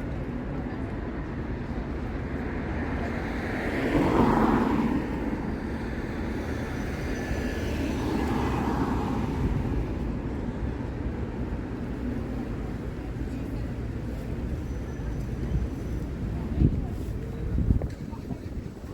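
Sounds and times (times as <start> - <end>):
vehicles passing: 0.0 - 18.9
wind on microphone rumble: 15.2 - 18.9.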